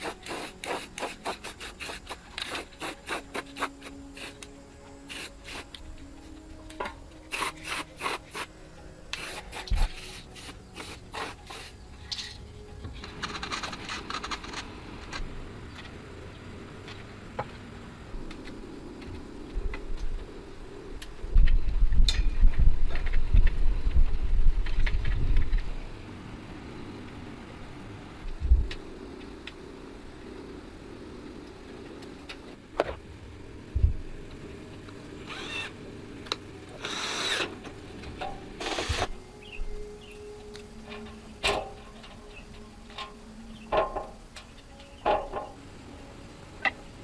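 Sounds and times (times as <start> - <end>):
steady hiss: 0.0 - 47.0
rubbing and scraping with clicks: 12.1 - 15.2.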